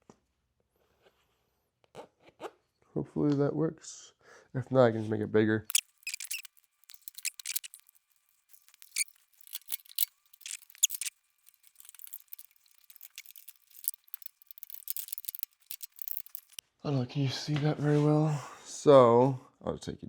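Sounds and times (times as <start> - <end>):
small parts clicking and scraping: 5.7 - 16.6.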